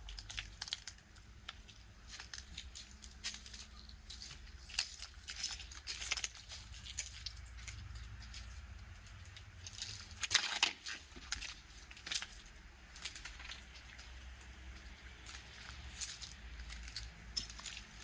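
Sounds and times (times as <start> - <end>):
steady low rumble: 0.0 - 10.4.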